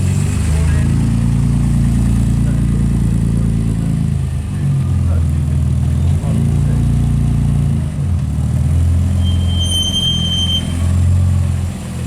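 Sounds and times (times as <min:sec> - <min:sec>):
car engine low rumble: 0:00.0 - 0:12.0
high whistling tone: 0:09.1 - 0:10.9.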